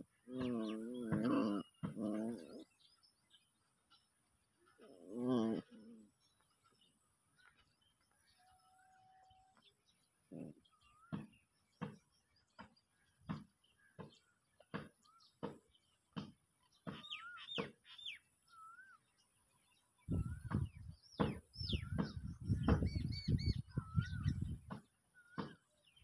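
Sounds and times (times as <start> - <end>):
bird chirping: 0.0 - 26.0
regular knocks: 11.1 - 17.8, 20.4 - 23.1.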